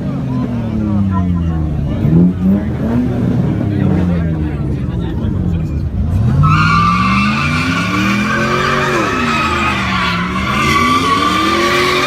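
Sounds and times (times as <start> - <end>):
car engine revving: 0.1 - 12.0
tires squealing: 6.0 - 12.0.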